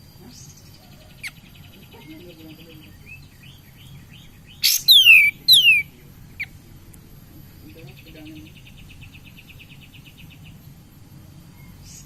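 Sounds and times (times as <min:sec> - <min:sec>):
bird calling: 0:04.5 - 0:06.6.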